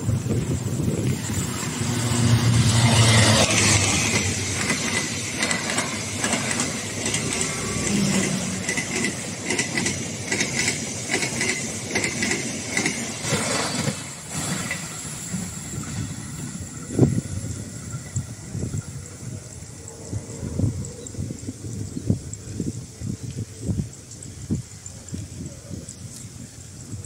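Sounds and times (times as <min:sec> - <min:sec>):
train wheels clattering on rails: 0:00.0 - 0:19.2
diesel locomotive engine: 0:00.0 - 0:27.0.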